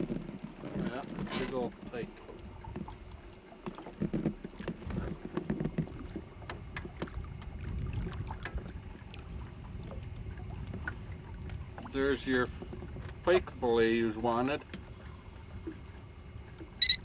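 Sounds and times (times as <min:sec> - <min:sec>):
fishing gear clicks and knocks: 0:02.7 - 0:06.9
fish knocking against boat hull: 0:03.6 - 0:07.6
wind rumble on microphone: 0:04.1 - 0:14.1.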